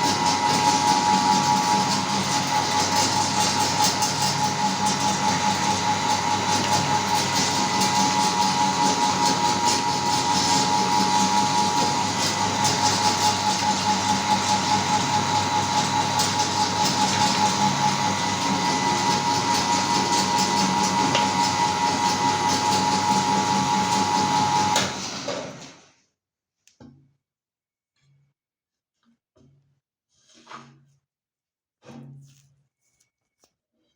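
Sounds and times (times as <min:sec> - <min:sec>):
electric meat grinder whining: 0:00.0 - 0:25.8.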